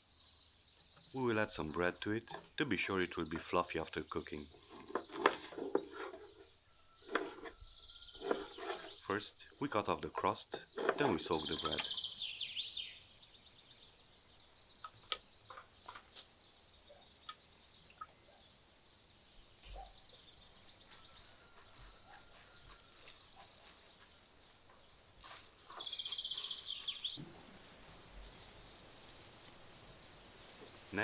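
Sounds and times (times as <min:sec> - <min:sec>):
faint outdoor background noise: 0:00.0 - 0:31.0
songbird trilling: 0:10.8 - 0:21.6, 0:25.2 - 0:31.0.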